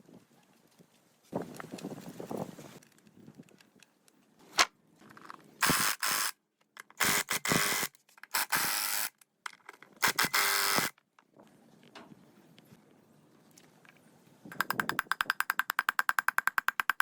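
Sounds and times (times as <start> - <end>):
tool click: 14.5 - 17.0.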